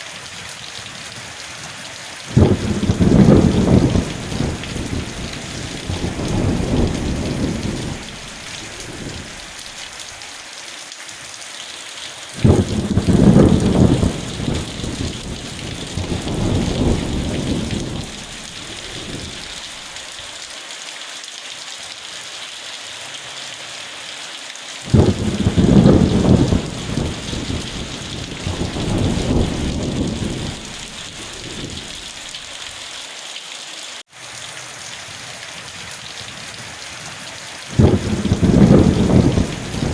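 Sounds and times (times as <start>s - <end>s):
heavy rain hissing: 0.0s - 39.9s
rolling thunder: 2.3s - 9.7s, 12.4s - 19.8s, 24.9s - 32.5s, 37.7s - 39.9s.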